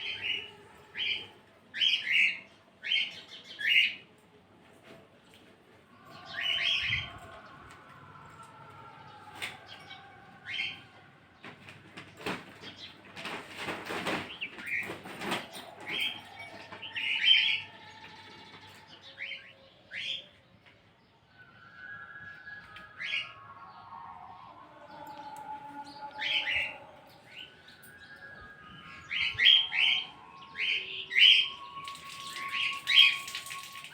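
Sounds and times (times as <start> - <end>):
birds chirping: 6.0 - 33.9
rustling noise: 11.4 - 16.8.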